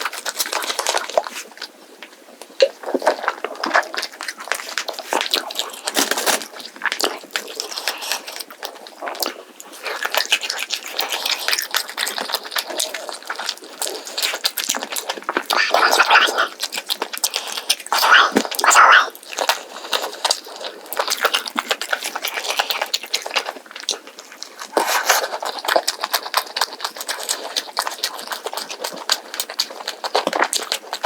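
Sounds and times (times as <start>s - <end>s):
chewing and biting food: 0.0s - 31.0s
crisp rice crackling: 3.2s - 8.3s.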